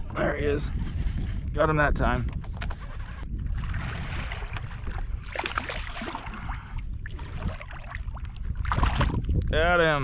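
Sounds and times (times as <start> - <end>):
wind rumble on microphone: 0.0 - 10.0
water splashing from hooked fish: 3.5 - 9.4.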